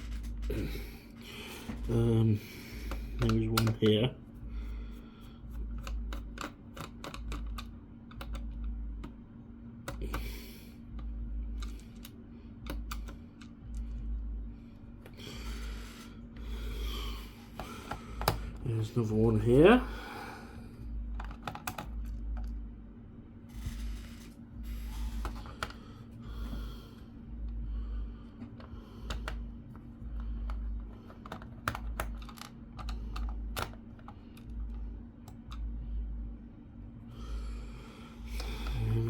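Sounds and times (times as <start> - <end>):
faint steady hum: 0.0 - 39.0
screwdriver clicks and taps on plastic: 2.9 - 4.0, 5.7 - 9.2, 11.0 - 13.8, 17.6 - 18.5, 21.2 - 22.5, 28.4 - 29.4, 30.2 - 34.6.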